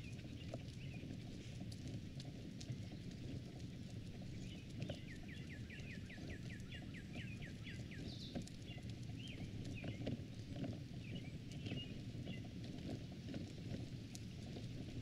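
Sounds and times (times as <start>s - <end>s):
songbird singing: 4.3s - 10.0s, 11.0s - 12.5s.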